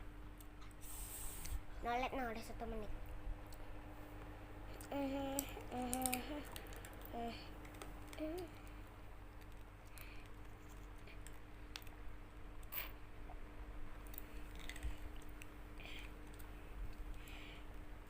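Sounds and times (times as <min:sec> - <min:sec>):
faint steady hum: 0:00.0 - 0:18.0
chewing food: 0:14.0 - 0:17.2.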